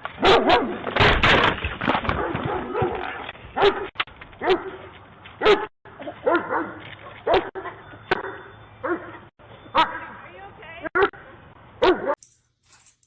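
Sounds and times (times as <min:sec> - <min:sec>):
dog barking and yipping: 0:00.1 - 0:00.8, 0:02.1 - 0:10.2, 0:11.0 - 0:12.3.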